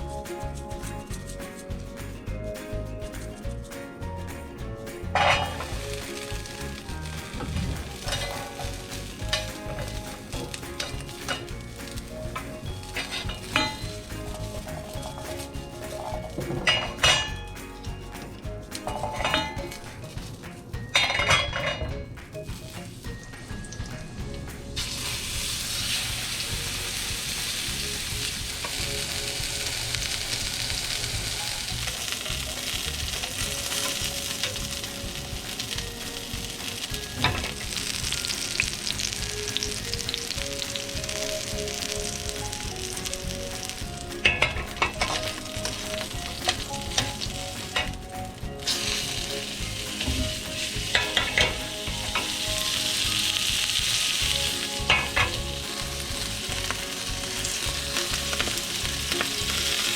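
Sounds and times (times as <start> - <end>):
steak sizzling in a frying pan: 5.2 - 20.2, 24.6 - 59.9
utensil clicking against pan: 28.5 - 59.9.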